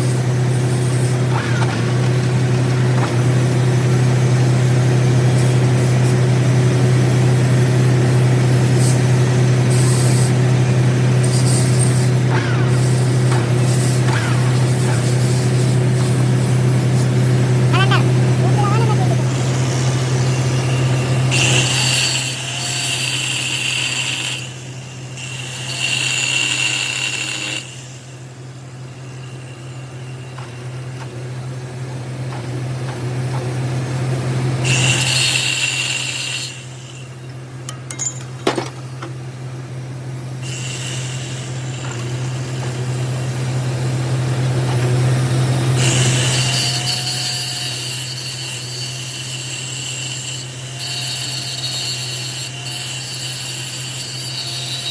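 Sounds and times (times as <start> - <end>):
lathe humming: 0.0 - 47.2
high-pitched cutting screech: 11.2 - 24.6.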